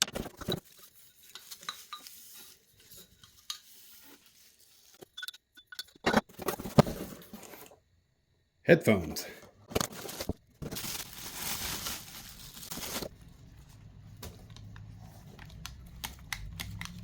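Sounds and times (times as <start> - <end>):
rustling: 0.2 - 5.1, 9.9 - 15.6.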